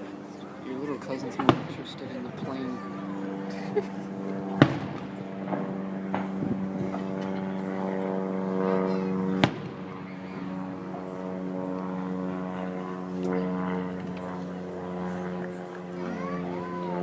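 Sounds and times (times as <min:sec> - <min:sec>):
propeller airplane droning: 0:00.0 - 0:17.0
firework bangs: 0:01.4 - 0:02.0, 0:04.6 - 0:07.0, 0:09.4 - 0:09.9.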